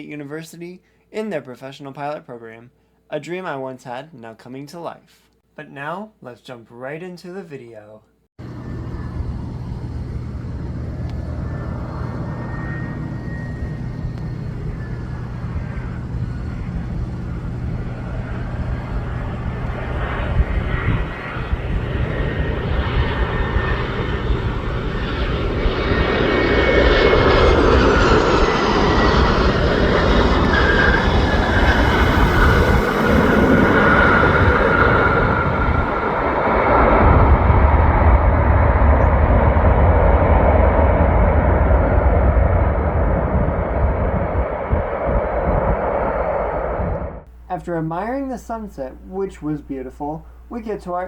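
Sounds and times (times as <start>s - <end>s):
airliner engines roaring: 8.4s - 47.3s
faint high whine: 8.4s - 51.0s.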